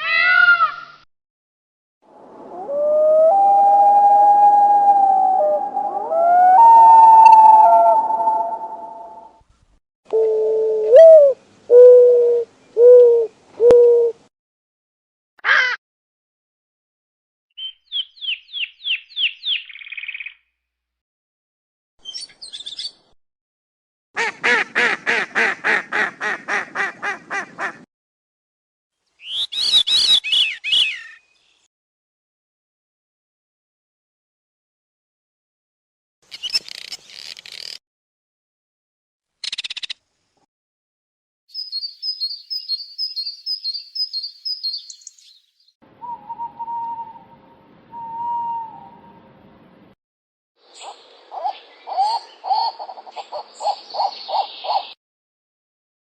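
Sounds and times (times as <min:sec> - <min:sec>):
warbling bird-like whistle: 0:02.5 - 0:09.4, 0:46.0 - 0:49.2
quack-like calls: 0:15.5 - 0:15.8, 0:24.2 - 0:27.8
high chirps: 0:41.5 - 0:45.4.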